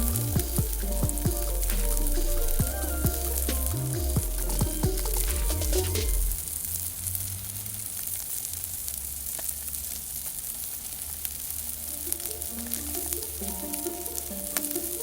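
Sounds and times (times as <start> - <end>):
faint fire crackles: 0.0 - 15.0
chicken sizzling on grill: 6.3 - 15.0.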